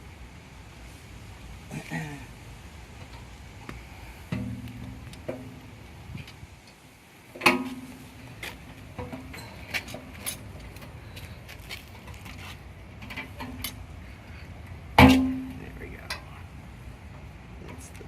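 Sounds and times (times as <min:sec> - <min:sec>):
ringing metal clank: 0:15.0 - 0:15.6.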